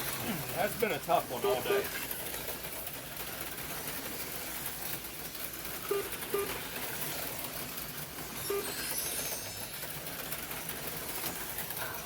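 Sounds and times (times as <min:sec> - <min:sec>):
slot car motors whirring: 0:00.0 - 0:12.0.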